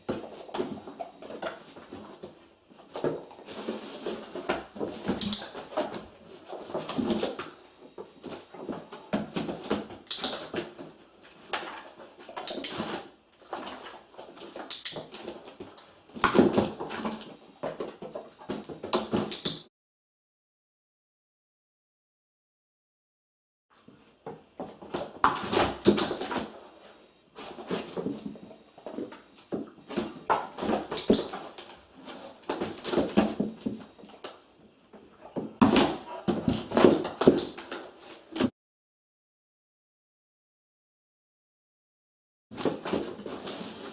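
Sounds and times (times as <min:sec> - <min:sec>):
dog scuffing cardboard box: 0:42.6 - 0:43.9.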